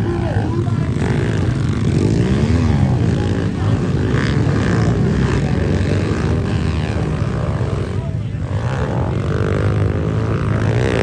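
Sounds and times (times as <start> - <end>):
pit bike engines buzzing: 0.0 - 11.0.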